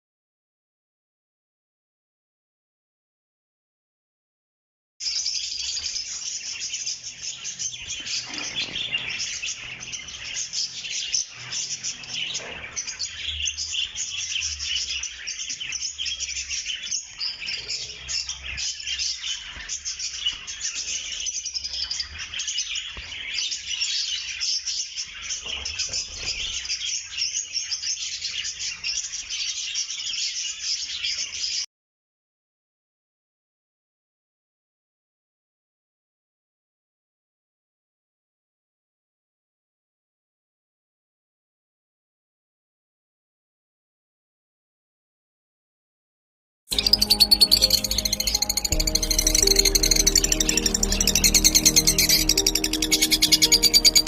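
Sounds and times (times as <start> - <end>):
lovebirds chattering: 46.7 - 54.0.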